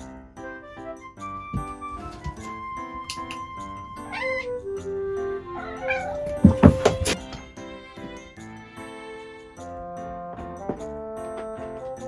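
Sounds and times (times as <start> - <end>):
background music: 0.0 - 12.0
cat meowing: 4.0 - 4.7, 5.5 - 7.4.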